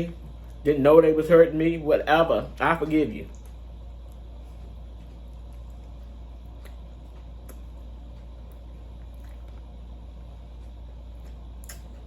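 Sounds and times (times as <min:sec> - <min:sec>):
steady low hum: 0:00.0 - 0:12.0
person chewing food: 0:03.4 - 0:12.0
wet mouth clicks: 0:11.6 - 0:12.0.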